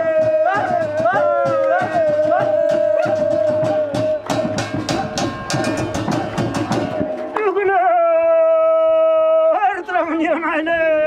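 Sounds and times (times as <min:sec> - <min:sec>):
drums beaten in fast rhythm: 0:00.0 - 0:07.7.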